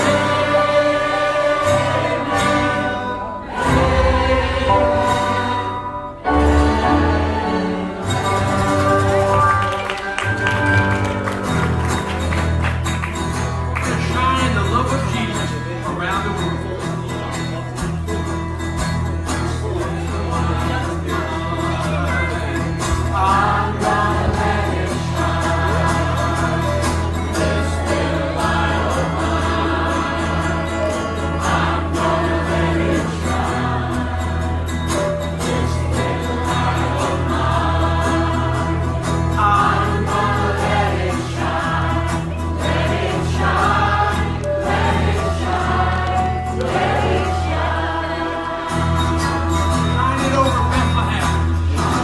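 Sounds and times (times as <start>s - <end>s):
group of voices singing: 0.0s - 9.4s, 19.3s - 50.0s, 51.6s - 52.0s.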